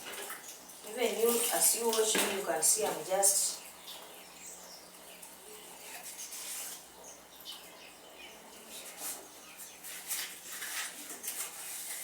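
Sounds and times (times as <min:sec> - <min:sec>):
washing dishes in water: 0:00.0 - 0:07.7
birds chirping: 0:00.6 - 0:10.1.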